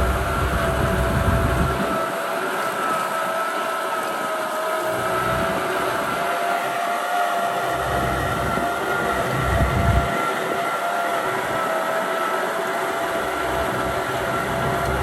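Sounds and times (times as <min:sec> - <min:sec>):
tractor diesel engine running: 0:00.0 - 0:03.0, 0:07.4 - 0:11.6, 0:12.7 - 0:15.0.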